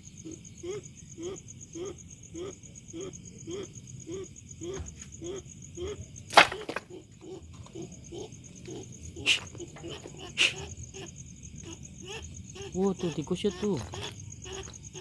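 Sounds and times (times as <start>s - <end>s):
crickets chirping: 0.0s - 15.0s
animal giving short low calls: 7.2s - 15.0s.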